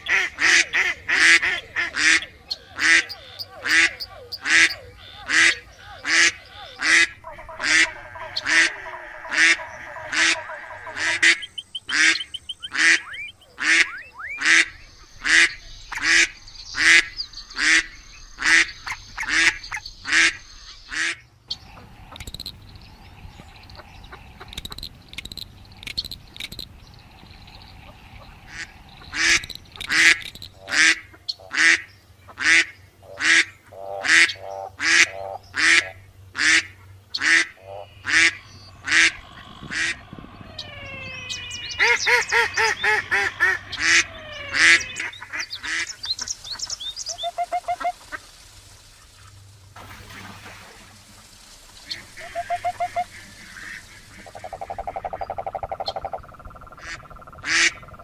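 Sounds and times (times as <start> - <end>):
duck quacking: 0.0 - 21.2, 28.5 - 46.3, 52.2 - 57.9.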